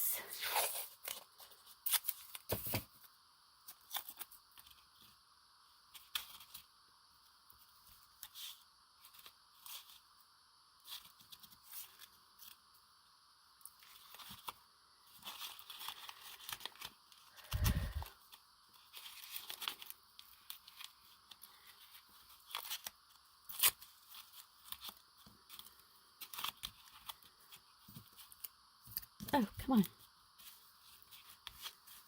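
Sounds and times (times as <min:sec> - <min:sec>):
paper handled: 0:13.8 - 0:29.8, 0:30.4 - 0:32.0.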